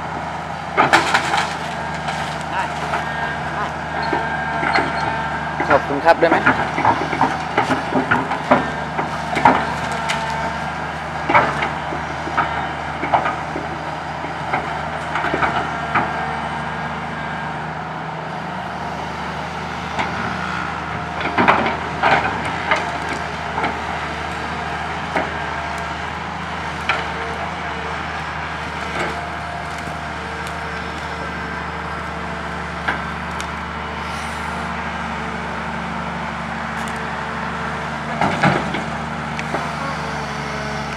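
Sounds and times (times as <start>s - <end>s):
excavator diesel engine running: 0.0s - 40.9s
tree branches cracking and snapping: 0.8s - 3.2s, 6.6s - 10.6s, 21.3s - 26.0s, 28.0s - 33.7s, 36.7s - 37.1s.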